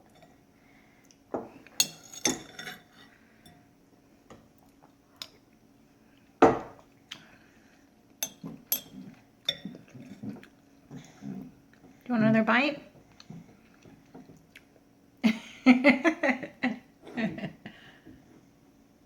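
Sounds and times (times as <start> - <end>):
spoon clinking against bowl: 1.8 - 2.8, 8.2 - 9.8.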